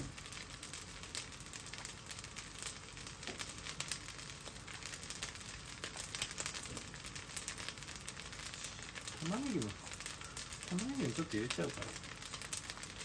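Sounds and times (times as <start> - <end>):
rice crackling in a wok: 0.0 - 13.0.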